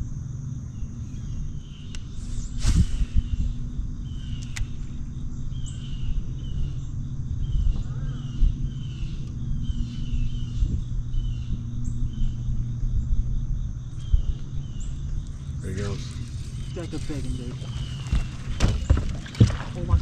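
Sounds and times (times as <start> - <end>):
low rumble and hum: 0.0 - 20.0
bird chirping: 5.5 - 13.2, 13.8 - 20.0.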